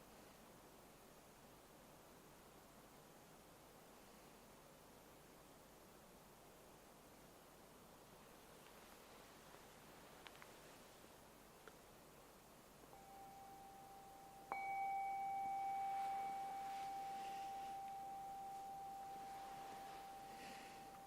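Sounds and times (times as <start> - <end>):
meditation bell ringing: 12.9 - 21.0.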